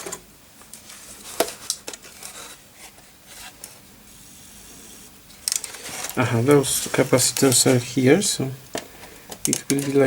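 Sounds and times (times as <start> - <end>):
faint hiss: 4.0 - 10.0.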